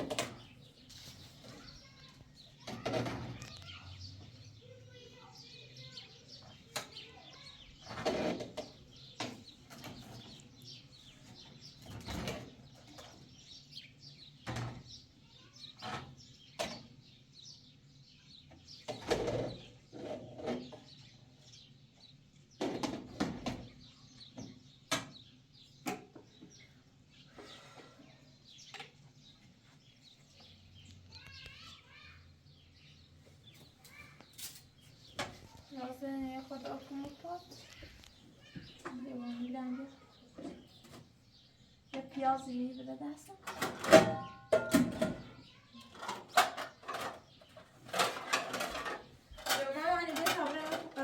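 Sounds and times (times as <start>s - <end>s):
faint bird chirping: 0.0s - 22.8s, 23.5s - 51.0s
knocks and clatter: 43.4s - 51.0s.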